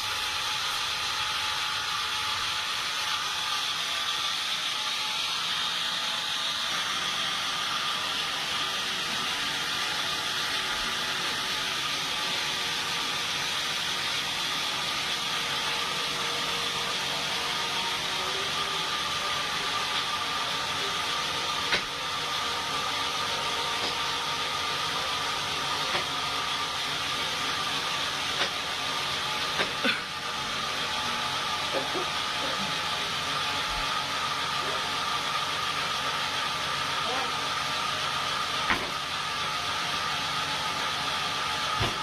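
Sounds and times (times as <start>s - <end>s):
sawmill machinery running: 0.0s - 42.0s.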